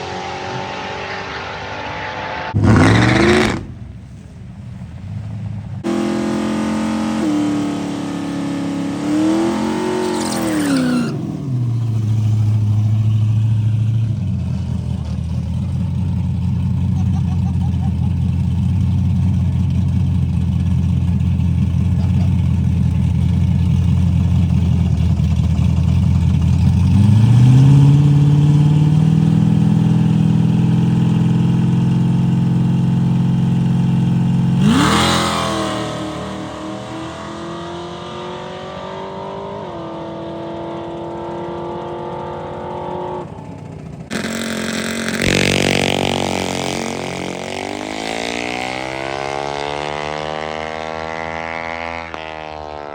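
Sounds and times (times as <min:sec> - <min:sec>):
engine notes sliding down in pitch: 0:00.0 - 0:04.3
sudden loud burst: 0:02.6 - 0:04.6
car engine idling: 0:02.6 - 0:10.0, 0:11.2 - 0:34.8, 0:40.0 - 0:47.9.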